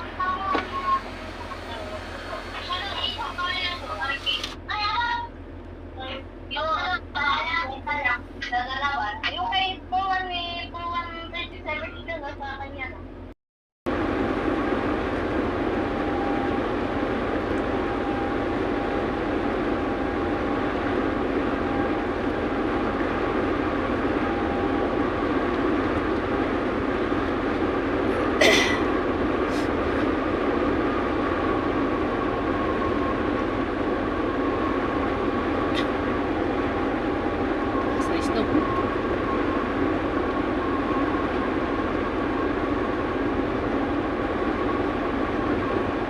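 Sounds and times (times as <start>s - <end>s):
truck engine and road rumble: 0.0s - 46.0s.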